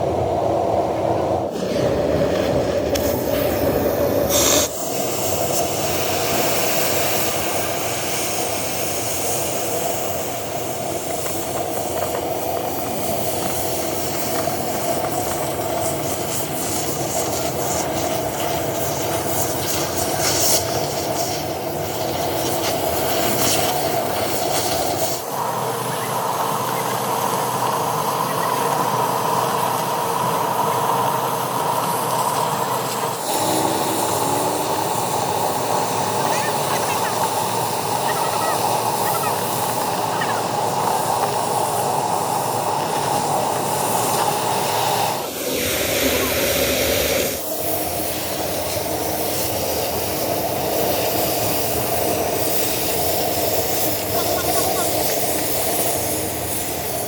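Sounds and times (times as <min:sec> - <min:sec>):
mechanical workshop noise with hiss: 0:00.0 - 0:57.0.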